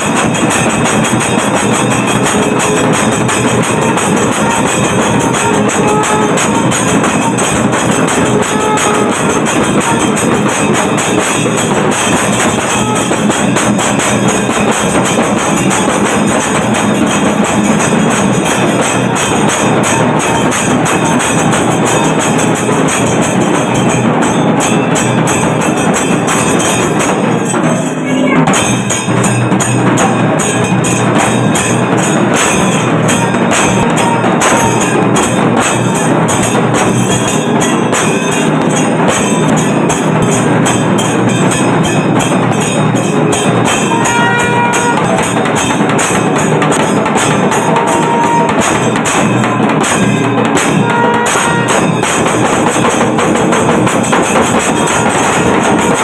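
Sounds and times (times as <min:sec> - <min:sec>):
fast driving drums: 0:00.0 - 0:56.0
jingling cymbals: 0:00.0 - 0:56.0
held wind instrument tones: 0:01.9 - 0:13.9, 0:19.4 - 0:52.0.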